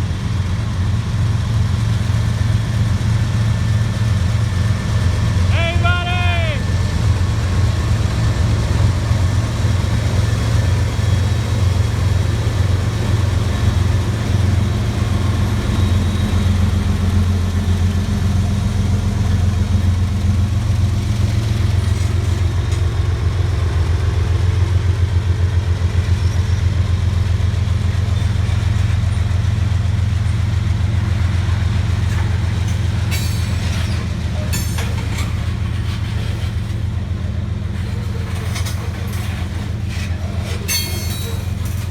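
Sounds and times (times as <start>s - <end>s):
freight train rumbling past: 0.0s - 41.9s
sharp high clanks and squeals: 15.4s - 17.3s, 32.0s - 36.9s, 37.7s - 41.9s.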